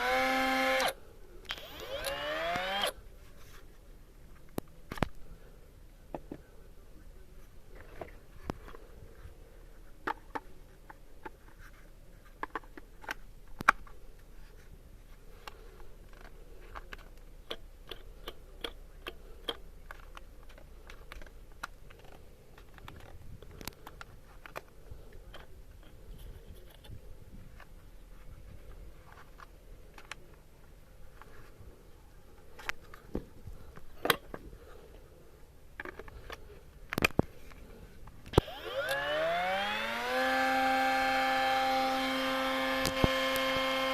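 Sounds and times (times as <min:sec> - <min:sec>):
hard objects clicking and scraping: 0:15.2 - 0:27.0.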